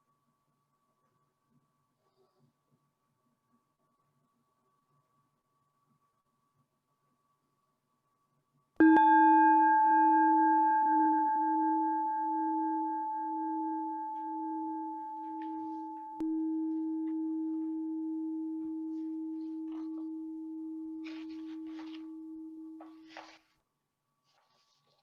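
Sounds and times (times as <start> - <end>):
singing bowl ringing: 8.8 - 23.4.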